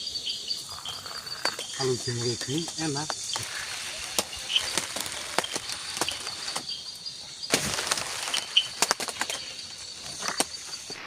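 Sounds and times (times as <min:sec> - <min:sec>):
insects buzzing: 0:00.0 - 0:11.0
sharp clicks and cracks: 0:01.4 - 0:06.7, 0:07.5 - 0:11.0.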